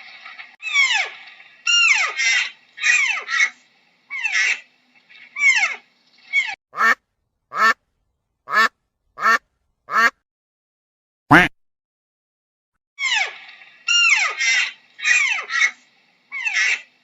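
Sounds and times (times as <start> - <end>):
duck quacking: 6.8 - 7.8, 8.5 - 10.2, 11.3 - 11.5.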